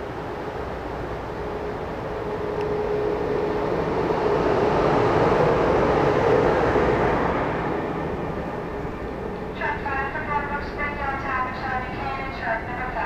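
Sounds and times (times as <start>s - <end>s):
locomotive rushing rumble: 0.0s - 13.0s
steady whine: 0.0s - 13.0s.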